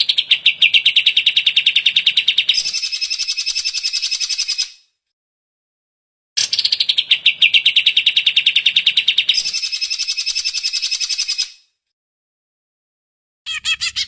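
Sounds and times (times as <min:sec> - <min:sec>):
bird singing fast trill: 0:06.4 - 0:11.6, 0:13.5 - 0:14.0.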